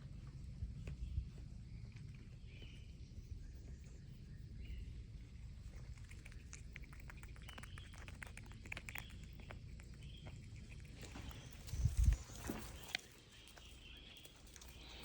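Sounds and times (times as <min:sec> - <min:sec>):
quick light clicks and patter: 0:05.6 - 0:15.0.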